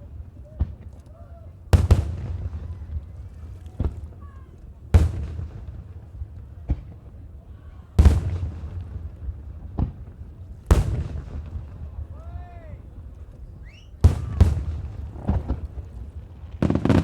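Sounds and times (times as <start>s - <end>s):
firework shells booming: 1.6s - 4.2s, 4.9s - 7.3s, 8.0s - 12.2s, 12.8s - 17.0s.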